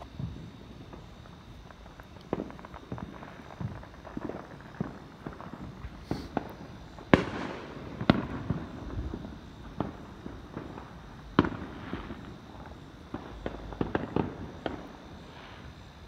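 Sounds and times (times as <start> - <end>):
firecracker pops: 0.0 - 12.4
firework bangs with echo: 2.3 - 15.6.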